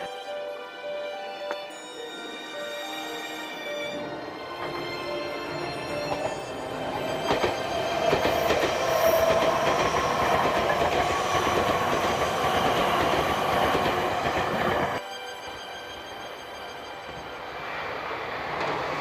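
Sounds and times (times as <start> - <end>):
train wheels clattering: 4.6 - 15.0.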